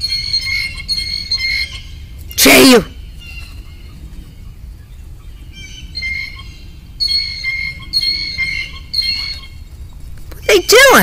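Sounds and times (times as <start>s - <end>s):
bird calling high notes: 0.0s - 4.0s, 5.3s - 9.7s.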